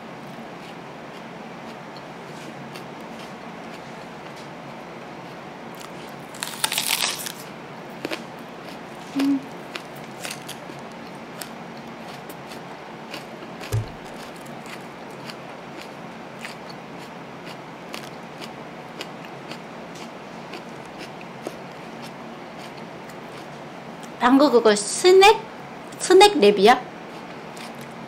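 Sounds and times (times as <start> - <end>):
chewing with crisp crunches: 0.6 - 4.5, 5.2 - 24.2, 27.1 - 28.0
low thump: 13.7 - 14.1.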